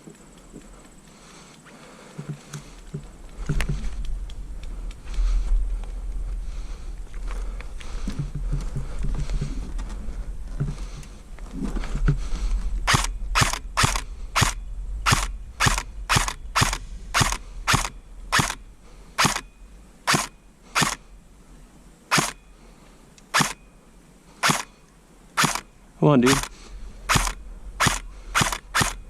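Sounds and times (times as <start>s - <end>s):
airsoft rifle single shots: 20.1s - 21.0s, 24.4s - 24.7s, 25.4s - 25.7s, 27.1s - 29.0s.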